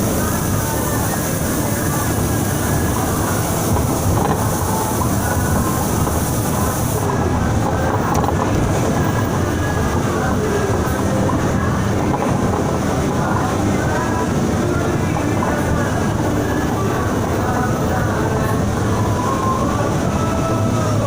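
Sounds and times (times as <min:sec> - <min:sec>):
high hiss: 0:00.0 - 0:07.2
bus engine and road rumble: 0:00.0 - 0:21.0.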